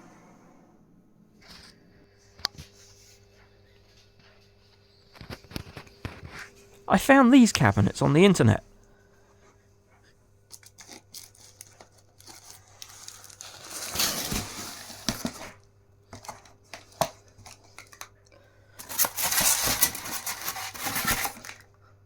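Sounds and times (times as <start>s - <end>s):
packaging tearing and crinkling: 10.5s - 15.5s, 18.8s - 21.6s.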